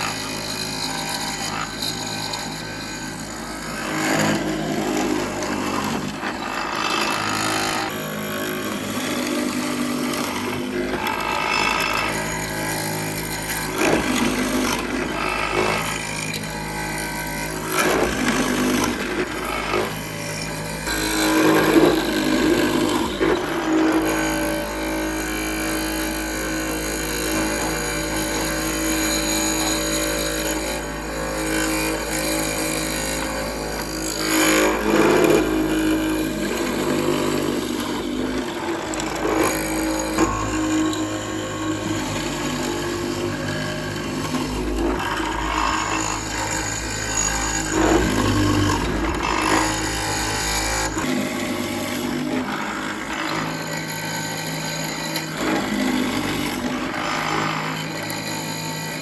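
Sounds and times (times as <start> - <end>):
power tool running on wood: 0.0 - 59.0.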